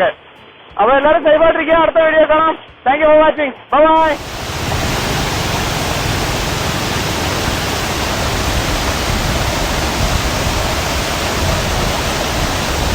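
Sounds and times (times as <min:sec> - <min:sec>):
waterfall roaring: 0:04.0 - 0:12.9.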